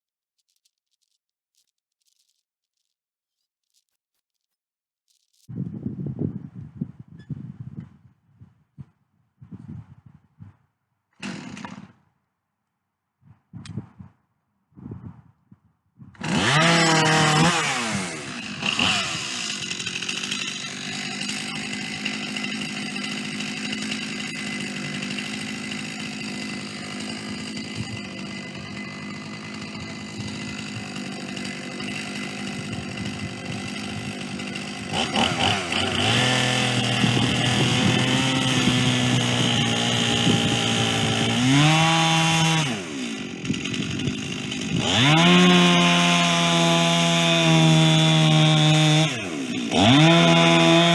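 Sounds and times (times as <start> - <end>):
chainsaw cutting a log: 11.1 - 12.1, 16.1 - 50.9.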